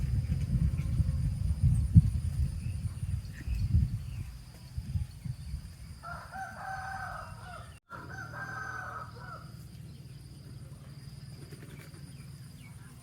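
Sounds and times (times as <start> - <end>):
rooster crowing: 6.0 - 9.7.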